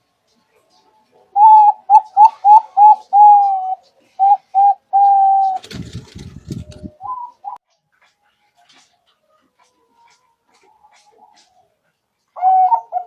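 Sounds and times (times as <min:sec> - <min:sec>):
dove cooing: 0:00.6 - 0:07.6, 0:09.6 - 0:13.0.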